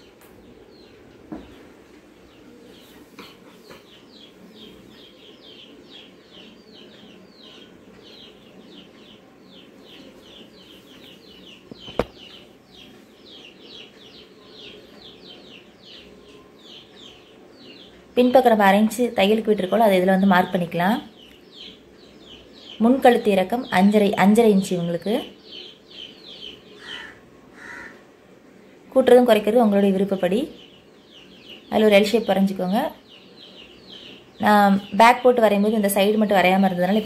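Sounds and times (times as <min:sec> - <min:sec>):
small bird chirping: 0:00.0 - 0:28.0, 0:29.6 - 0:37.0
sharp tap: 0:11.7 - 0:12.2.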